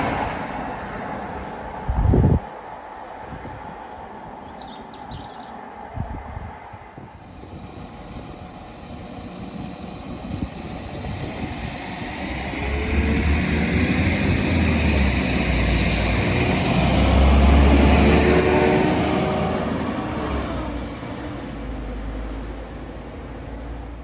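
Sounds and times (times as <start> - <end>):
train rumble: 0.0 - 24.0.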